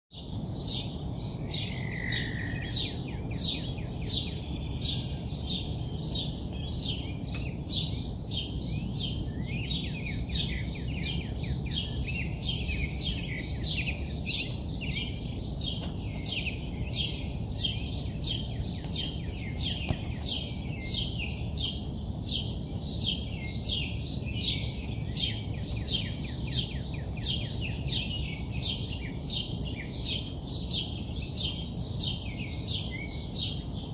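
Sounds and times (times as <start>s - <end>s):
bird chirping: 0.1s - 33.9s
low background rumble: 0.2s - 33.9s.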